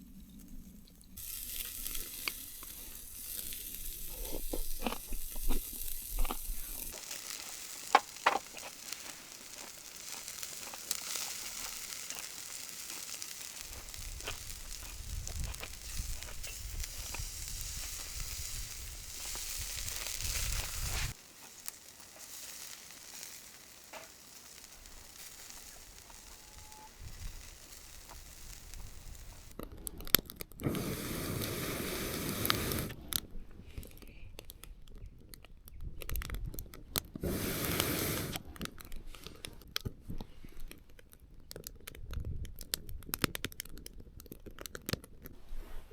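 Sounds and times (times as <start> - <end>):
handling and crinkling: 0.1 - 30.6
food sizzling in a pan: 1.2 - 29.6, 30.8 - 33.0, 37.2 - 38.4.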